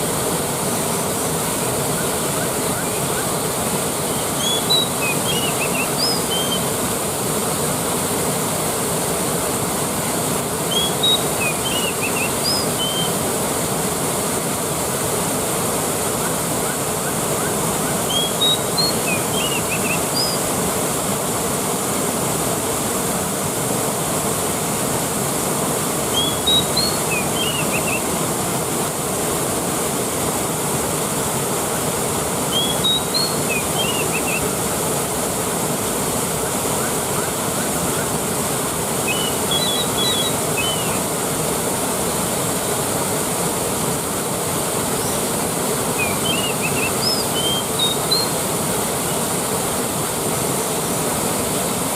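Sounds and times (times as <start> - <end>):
waterfall rushing: 0.0 - 51.9
high chirps: 4.1 - 6.6, 26.1 - 28.0, 32.5 - 34.5, 39.0 - 41.0, 45.9 - 48.4.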